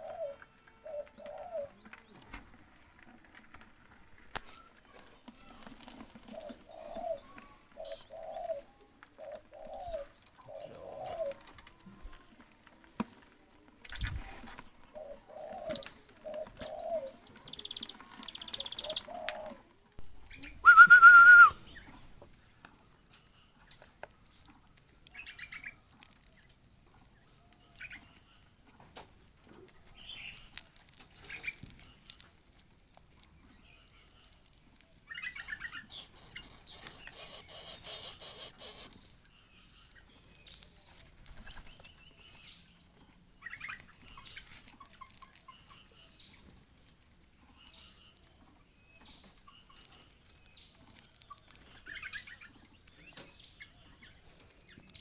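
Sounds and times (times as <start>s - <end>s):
bird chirping: 0.0s - 3.0s, 5.2s - 8.6s, 9.2s - 30.6s, 31.2s - 46.9s, 47.5s - 55.0s
loud whistle-like bird note: 20.6s - 21.6s.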